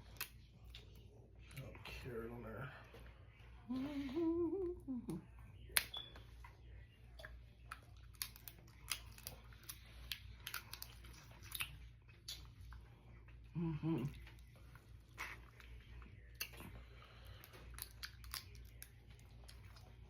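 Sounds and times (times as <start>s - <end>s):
person chewing: 0.0s - 1.8s, 4.6s - 20.0s
person humming: 3.7s - 5.2s, 13.5s - 14.2s
wet mouth clicks and smacks: 7.1s - 12.8s.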